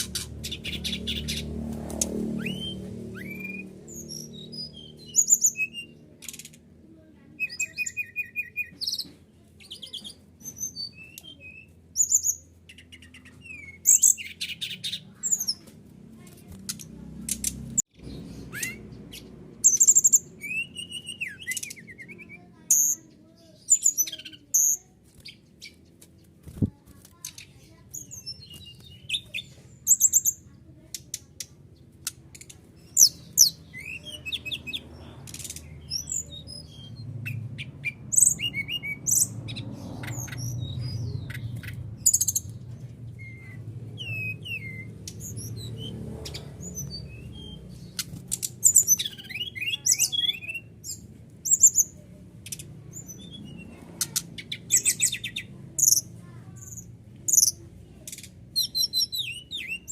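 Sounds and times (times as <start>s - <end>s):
bird singing chirps and trills: 0.0s - 59.9s.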